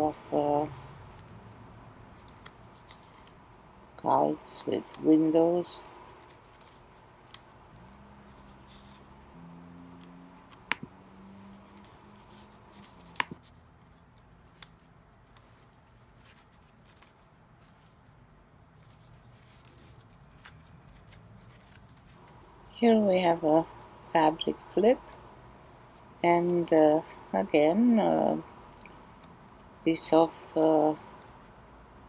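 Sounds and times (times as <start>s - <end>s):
paper rustling: 0.7s - 3.4s, 5.8s - 9.1s, 11.4s - 22.7s, 28.4s - 29.9s, 30.6s - 32.0s.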